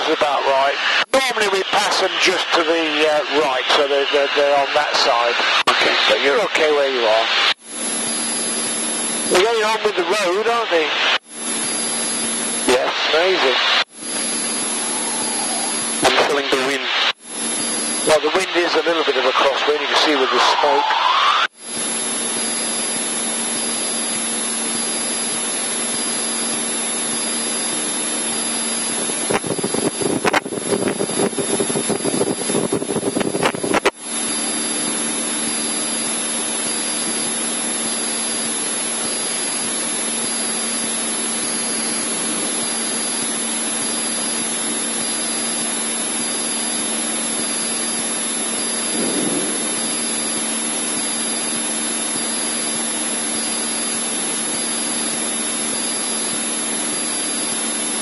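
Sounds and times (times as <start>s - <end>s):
aircraft engine and propeller droning: 0.0s - 58.0s
choppy rush of noise: 48.3s - 51.6s.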